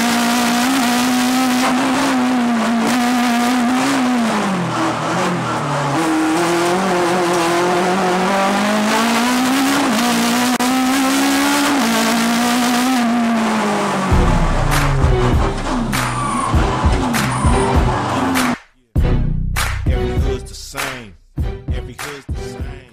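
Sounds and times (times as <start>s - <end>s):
car engine at high revs: 0.0s - 18.6s
deep rumble: 14.1s - 18.0s.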